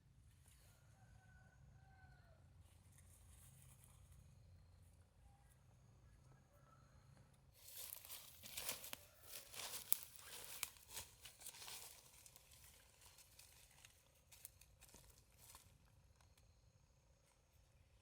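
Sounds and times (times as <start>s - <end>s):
close rustling and crinkling: 7.6s - 15.7s.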